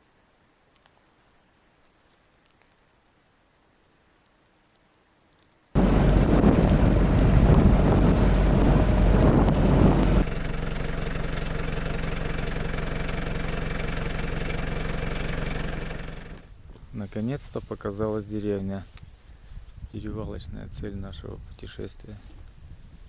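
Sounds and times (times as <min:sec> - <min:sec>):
vehicle engine humming: 0:05.8 - 0:16.6.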